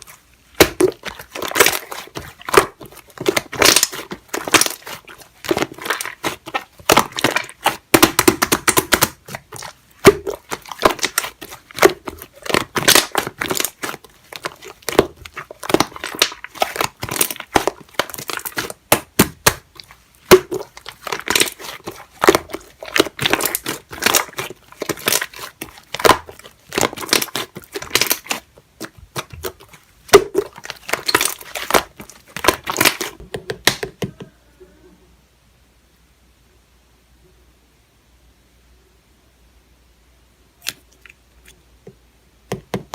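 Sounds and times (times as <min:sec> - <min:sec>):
slime squeezed by hand: 0:00.0 - 0:33.8.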